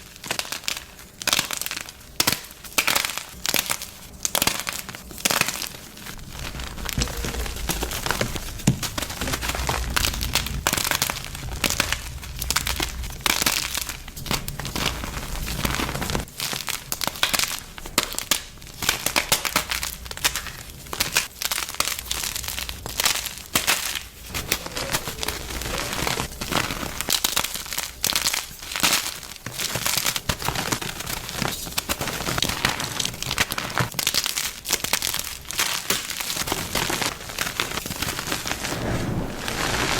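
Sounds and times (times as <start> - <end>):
chalk crunching and crackling: 0.2 - 39.9
low rumble: 6.2 - 16.2, 38.5 - 39.9.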